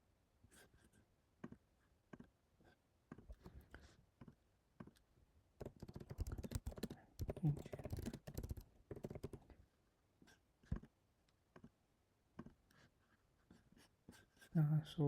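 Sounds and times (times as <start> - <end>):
computer mouse clicks: 5.6 - 9.4
rapid typing on a keyboard: 5.6 - 9.5.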